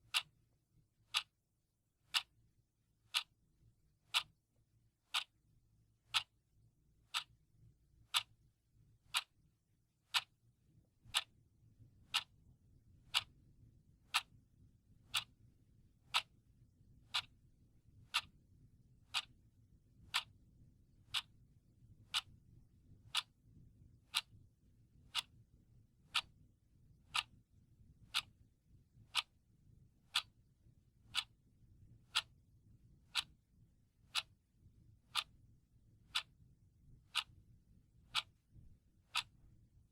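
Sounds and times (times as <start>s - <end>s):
clock ticking: 0.0s - 0.3s, 1.1s - 1.3s, 2.1s - 2.3s, 3.1s - 3.4s, 4.1s - 4.3s, 5.1s - 5.4s, 6.1s - 6.3s, 7.1s - 7.4s, 8.1s - 8.4s, 9.0s - 9.3s, 10.1s - 10.4s, 11.0s - 11.3s, 12.1s - 12.3s, 13.0s - 13.3s, 14.1s - 14.3s, 15.1s - 15.3s, 16.1s - 16.4s, 17.1s - 17.3s, 18.0s - 18.4s, 19.1s - 19.4s, 20.1s - 20.3s, 21.1s - 21.3s, 22.1s - 22.3s, 23.1s - 23.4s, 24.1s - 24.4s, 25.1s - 25.4s, 26.1s - 26.3s, 27.1s - 27.4s, 28.0s - 28.3s, 29.1s - 29.3s, 30.1s - 30.3s, 31.1s - 31.4s, 32.1s - 32.4s, 33.1s - 33.4s, 34.0s - 34.4s, 35.1s - 35.4s, 36.1s - 36.4s, 37.0s - 37.4s, 38.1s - 38.4s, 39.0s - 39.5s.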